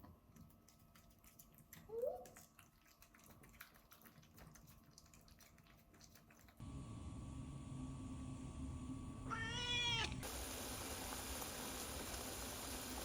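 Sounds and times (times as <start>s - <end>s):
cat chirp-like meow: 9.3s - 10.2s.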